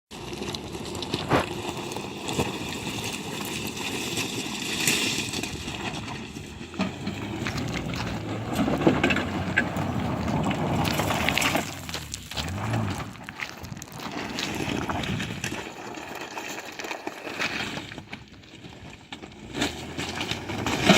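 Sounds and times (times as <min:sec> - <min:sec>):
car engine running: 0:00.1 - 0:16.7
tyre noise: 0:00.1 - 0:20.9.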